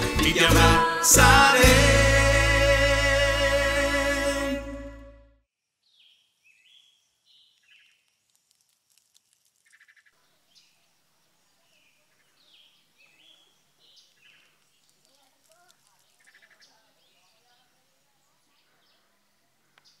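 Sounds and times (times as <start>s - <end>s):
faint outdoor ambience: 6.2s - 20.0s.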